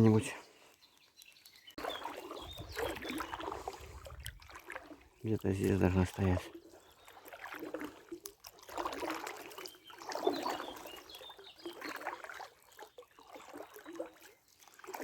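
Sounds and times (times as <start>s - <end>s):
water swishing and splashing: 0.0s - 15.0s.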